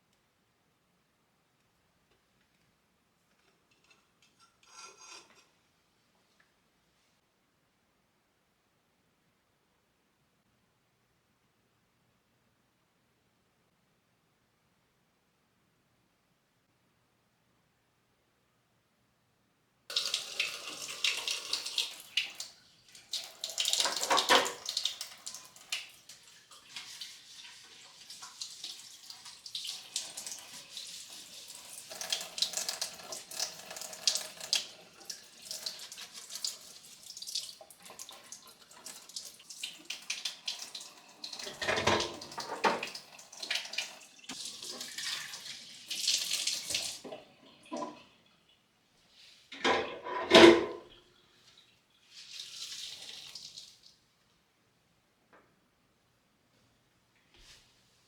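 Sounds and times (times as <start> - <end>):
water running from tap into sink: 19.9 - 47.9, 52.2 - 53.7.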